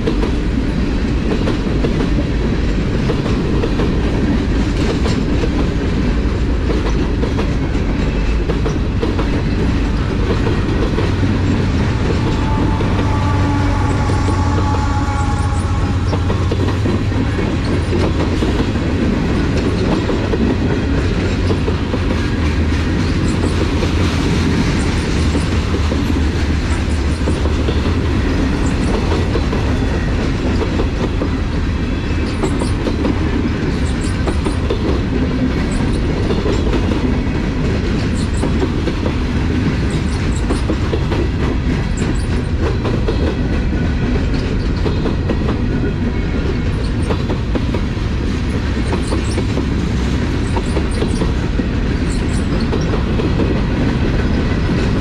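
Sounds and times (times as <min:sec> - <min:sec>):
freight train rumbling past: 0:00.0 - 0:55.0
wheels clacking over rail joints: 0:00.0 - 0:55.0.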